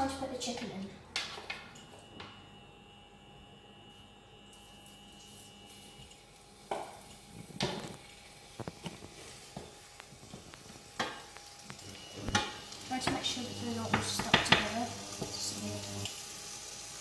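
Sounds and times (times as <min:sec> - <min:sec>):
chicken sizzling in oil: 0:05.2 - 0:17.0
utensil knocking against pan: 0:13.9 - 0:14.8.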